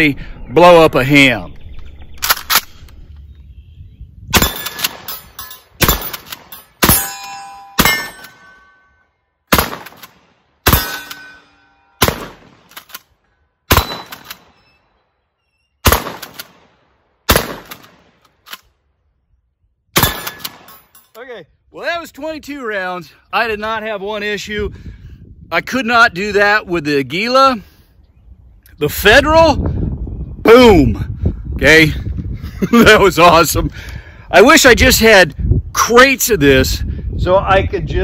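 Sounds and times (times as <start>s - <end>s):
shotgun shots: 4.3s - 8.6s, 9.5s - 11.4s, 12.0s - 12.9s, 13.7s - 14.6s, 15.8s - 18.2s, 20.0s - 20.8s
steel targets clanging: 4.4s - 9.1s, 10.7s - 12.0s.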